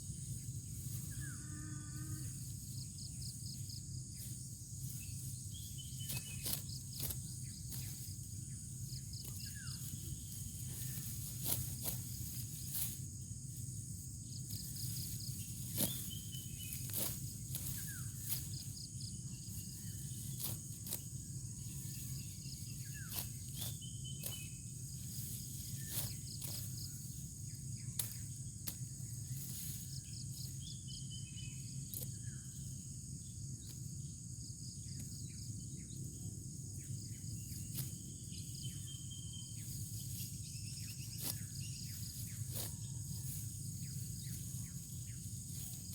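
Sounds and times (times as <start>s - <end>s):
high insect drone: 0.0s - 45.9s
steady low hum: 0.0s - 45.9s.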